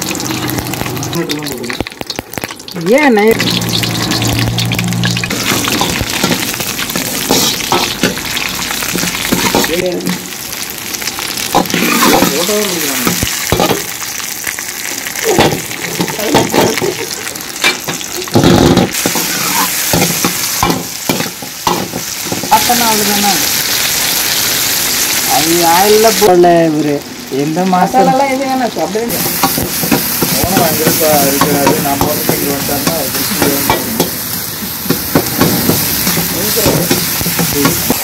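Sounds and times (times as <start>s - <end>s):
vegetables sizzling in hot oil: 0.0s - 38.0s
metal ladle scraping a pan: 3.5s - 9.7s.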